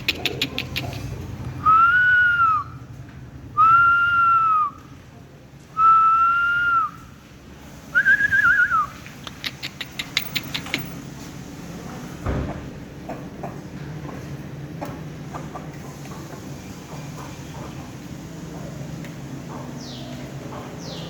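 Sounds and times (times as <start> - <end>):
quick run of sharp clicks: 9.0 - 11.0.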